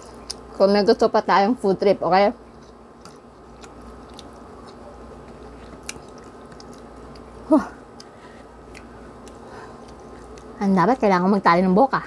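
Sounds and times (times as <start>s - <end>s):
chewing noodles: 2.4s - 10.6s.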